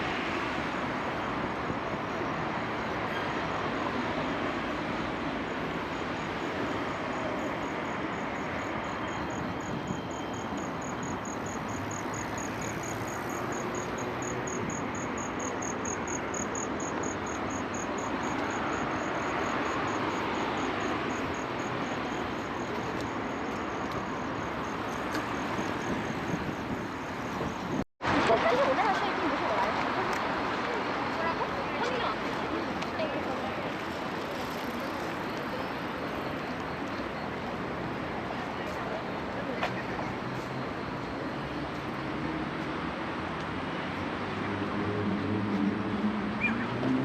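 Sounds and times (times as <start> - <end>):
city traffic noise: 0.0 - 47.0
insect chirping: 5.3 - 27.8.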